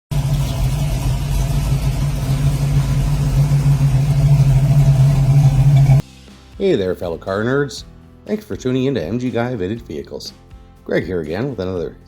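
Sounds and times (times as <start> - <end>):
car engine droning: 0.1 - 6.0.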